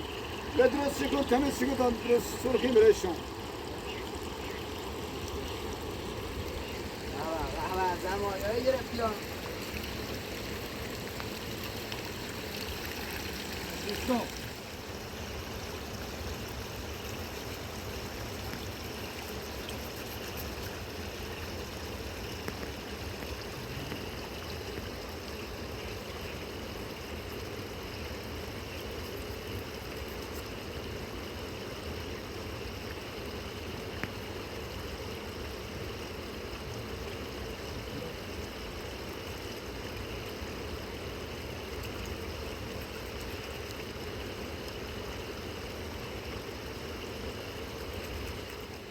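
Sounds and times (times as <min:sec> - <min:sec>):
river water rushing: 0:00.0 - 0:15.1.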